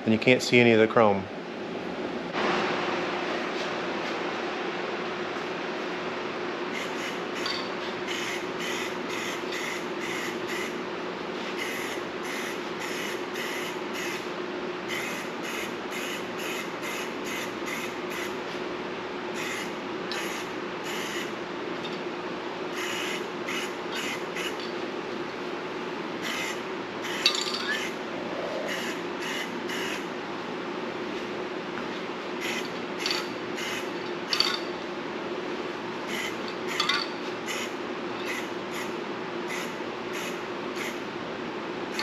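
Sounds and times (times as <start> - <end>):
steady hum: 0.0 - 42.0
aerosol can spraying: 6.8 - 7.5, 8.1 - 10.8, 11.6 - 14.2, 22.8 - 24.6, 28.7 - 30.0, 32.4 - 32.7, 33.6 - 33.9, 37.5 - 37.7, 38.3 - 38.9, 39.5 - 41.0.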